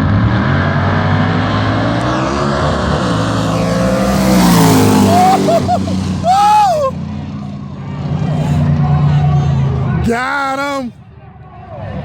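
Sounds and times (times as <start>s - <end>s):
rushing noise: 0.0s - 7.0s
race car engines: 0.0s - 12.0s.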